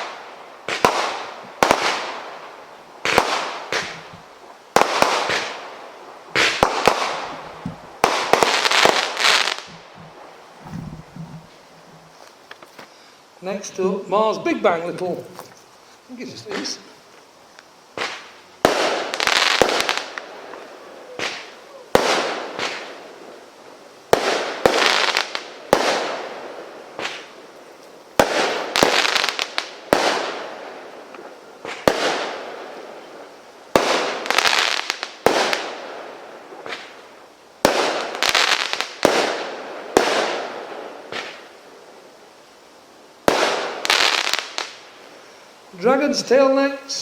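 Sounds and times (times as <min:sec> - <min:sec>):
firework shots banging: 0:00.0 - 0:02.2, 0:03.0 - 0:05.7, 0:06.3 - 0:11.7, 0:16.4 - 0:16.9, 0:18.0 - 0:23.0, 0:43.2 - 0:44.7.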